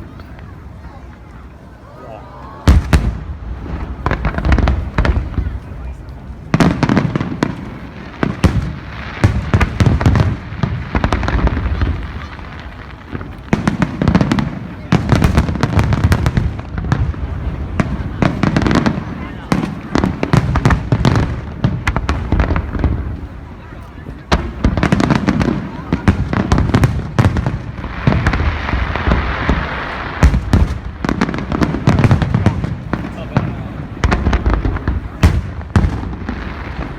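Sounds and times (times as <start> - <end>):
fireworks bangs and pops: 2.6 - 36.9.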